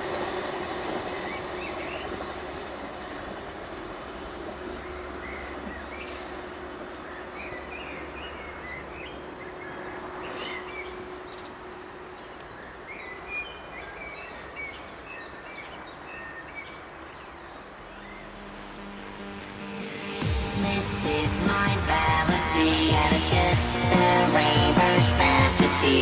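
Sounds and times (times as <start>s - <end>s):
outdoor background noise: 0.0s - 26.0s
small songbirds chirping: 4.7s - 19.7s.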